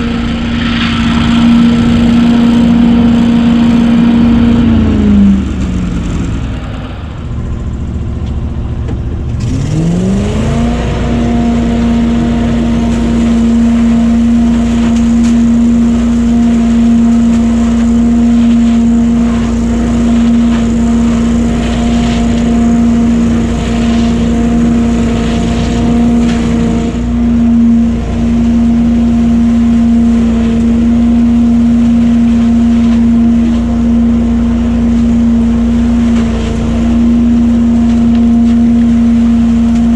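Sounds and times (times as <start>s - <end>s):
debris loader engine and fan: 0.0s - 39.9s
leaves rattling through machine: 9.4s - 39.9s.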